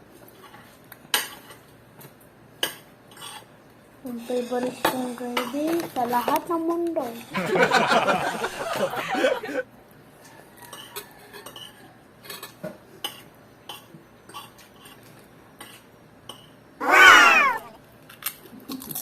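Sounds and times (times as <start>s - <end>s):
cutlery tapping and scraping on plate: 0.4s - 3.5s, 10.6s - 16.6s
short high-pitched cry: 16.8s - 17.8s.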